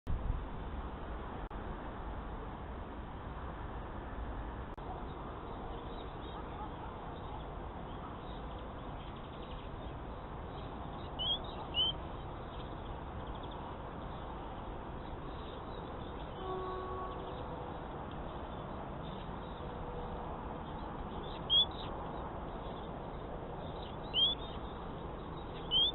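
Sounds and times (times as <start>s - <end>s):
songbird chirps: 4.9s - 25.9s
faint bird twittering: 5.1s - 14.4s, 20.6s - 25.9s.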